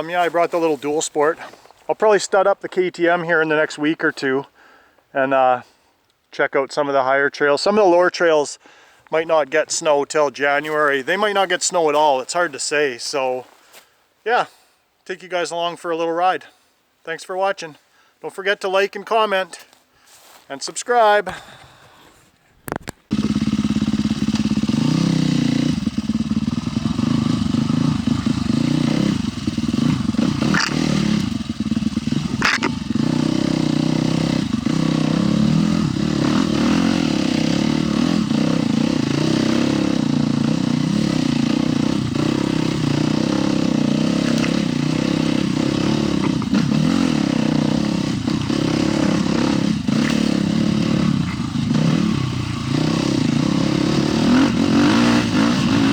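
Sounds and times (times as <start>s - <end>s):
motorcycle engine revving: 23.1s - 55.9s.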